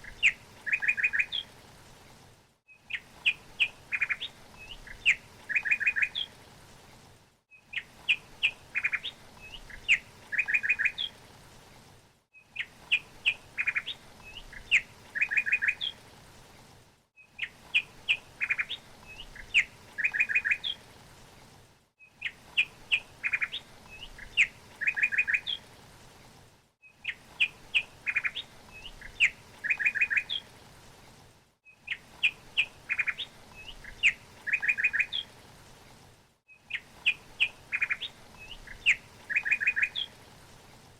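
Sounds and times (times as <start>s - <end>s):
songbird chirping and trilling: 0.0s - 1.5s, 2.9s - 6.3s, 7.6s - 11.2s, 12.5s - 16.0s, 17.3s - 20.8s, 22.2s - 25.6s, 27.0s - 30.5s, 31.7s - 35.3s, 36.6s - 40.2s
faint steady hiss: 0.0s - 40.9s.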